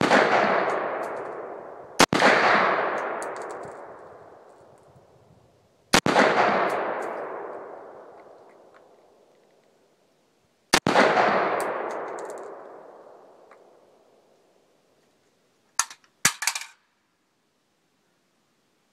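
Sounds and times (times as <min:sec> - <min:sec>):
rifle shot with echo: 0:00.0 - 0:04.4, 0:05.9 - 0:09.2, 0:10.7 - 0:14.1.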